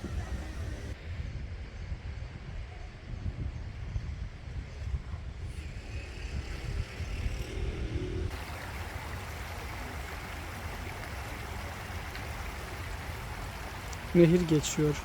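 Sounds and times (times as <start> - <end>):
low uneven rumble: 4.6 - 15.0
river water rushing: 8.3 - 15.0.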